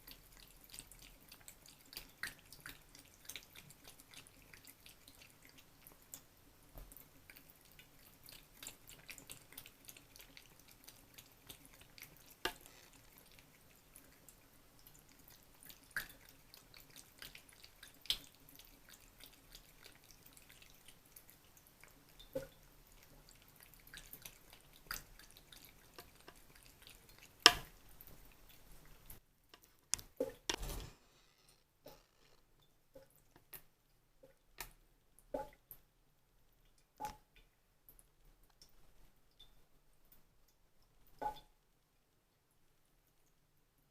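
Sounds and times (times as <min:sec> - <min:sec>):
faucet dripping and trickling: 0:00.0 - 0:29.2.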